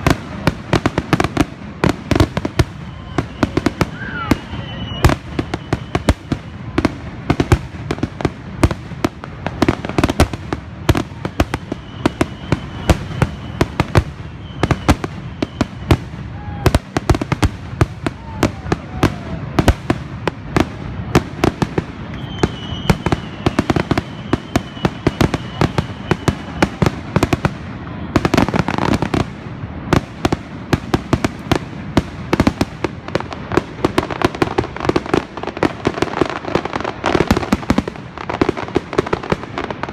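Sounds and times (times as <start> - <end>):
fireworks bangs and cracks: 0.0 - 39.9
faint high whistle: 2.7 - 6.8, 11.1 - 16.8, 21.8 - 27.0.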